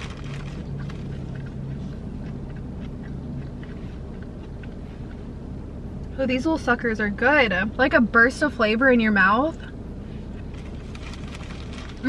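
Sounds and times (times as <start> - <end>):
person chewing: 0.0 - 5.4
low rumble inside car: 0.0 - 12.0.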